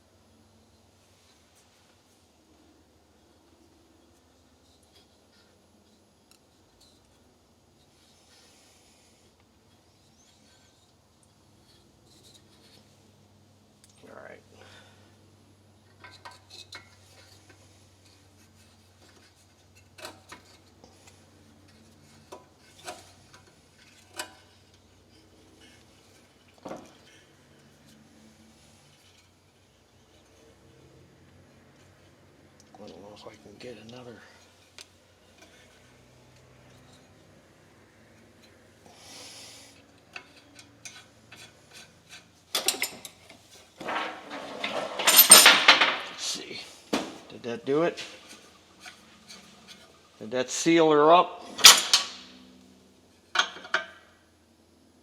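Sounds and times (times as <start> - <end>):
harsh metal scraping: 43.8 - 46.8.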